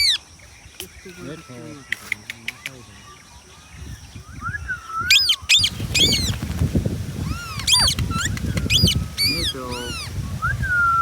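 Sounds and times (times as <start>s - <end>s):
parakeet whistling and screeching: 4.4s - 6.4s, 7.2s - 11.0s.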